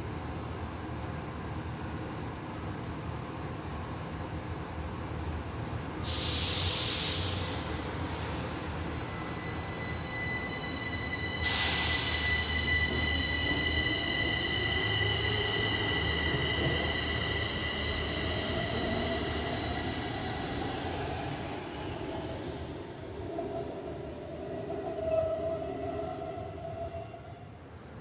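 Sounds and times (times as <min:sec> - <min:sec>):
burst of hiss: 0:06.1 - 0:08.4.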